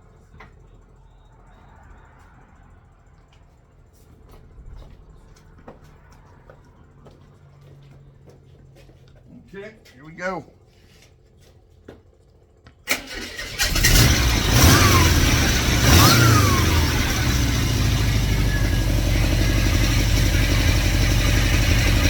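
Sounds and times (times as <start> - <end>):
engine starter cranking: 12.9 - 22.0
car engine revving and idling: 13.2 - 22.0.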